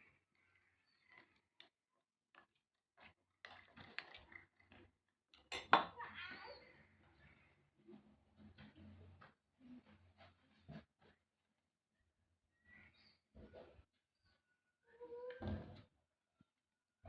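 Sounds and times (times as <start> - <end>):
dishes and utensils clinking: 5.5 - 6.0.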